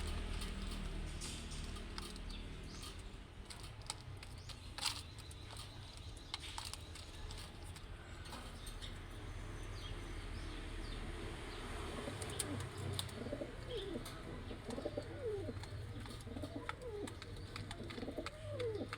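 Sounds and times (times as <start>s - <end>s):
pigeons cooing: 9.8s - 18.9s.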